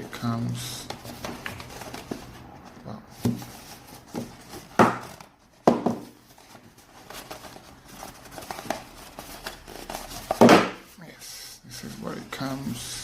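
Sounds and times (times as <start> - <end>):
light rustling of packaging: 0.0 - 13.0
knocks on packaging: 4.8 - 6.2, 10.4 - 10.8.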